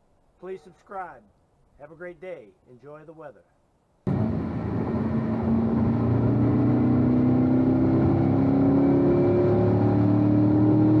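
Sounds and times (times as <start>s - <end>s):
car engine accelerating: 4.1s - 11.0s.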